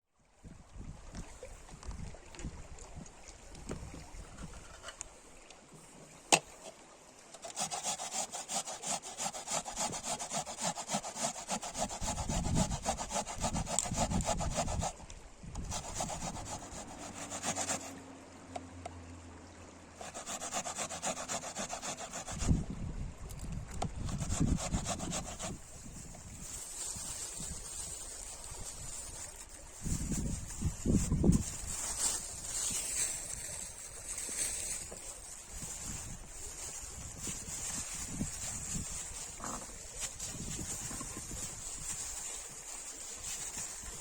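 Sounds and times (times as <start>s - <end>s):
hand saw cutting wood: 7.4s - 15.0s, 15.6s - 18.0s, 20.0s - 22.6s, 24.0s - 26.2s.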